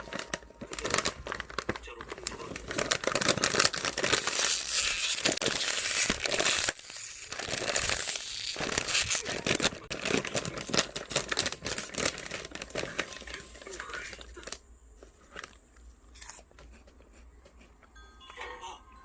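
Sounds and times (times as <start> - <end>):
dense crinkling and crackling: 0.0 - 17.0.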